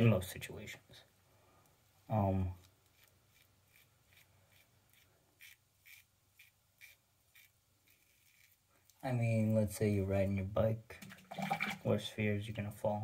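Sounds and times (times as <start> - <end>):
razor scraping across stubble: 2.6 - 8.7.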